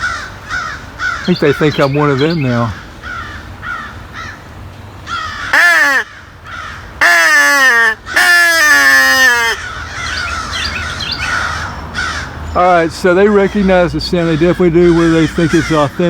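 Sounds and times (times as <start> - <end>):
crow call caws: 0.0 - 4.5, 5.1 - 12.5, 13.2 - 16.0
crows cawing: 0.0 - 16.0.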